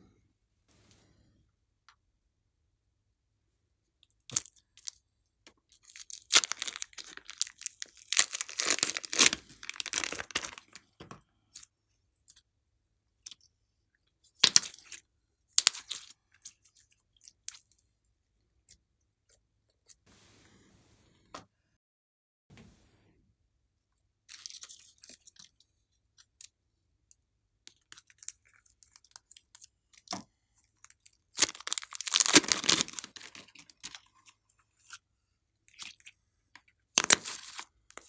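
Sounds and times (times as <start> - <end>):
slime popping: 6.2 - 10.7, 31.4 - 33.4
slime crackling: 6.2 - 10.8, 31.4 - 33.5.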